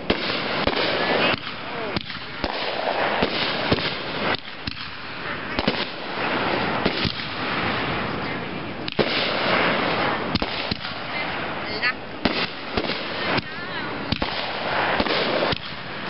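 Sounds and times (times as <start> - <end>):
firework shells bursting: 0.0 - 16.0.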